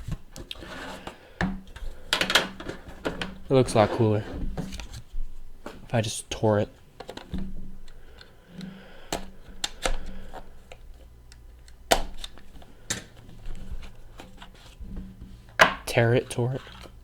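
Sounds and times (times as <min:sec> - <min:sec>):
scraping and rustling: 0:00.0 - 0:05.9, 0:12.4 - 0:17.0.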